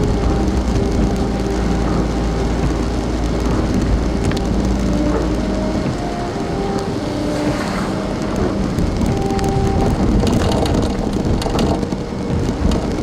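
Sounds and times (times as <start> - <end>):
low rumble: 0.0 - 13.0
steady rain: 0.0 - 13.0
traffic noise: 0.0 - 13.0.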